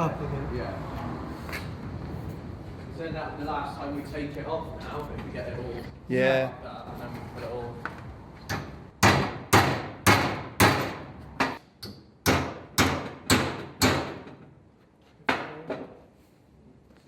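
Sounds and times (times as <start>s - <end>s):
hammer striking metal pipe: 8.5s - 14.3s.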